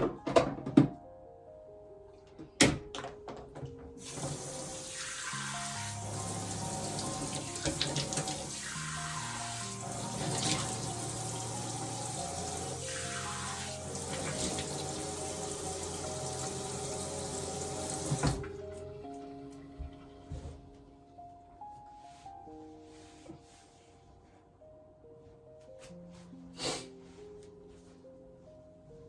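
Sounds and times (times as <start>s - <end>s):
tap running into sink: 4.0s - 4.6s, 7.0s - 8.4s, 17.8s - 18.6s.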